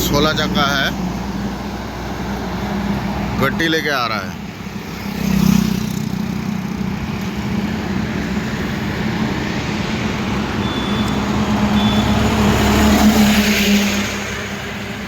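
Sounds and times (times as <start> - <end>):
highway traffic rumble: 0.0 - 15.0
heavy truck drone: 6.4 - 15.0.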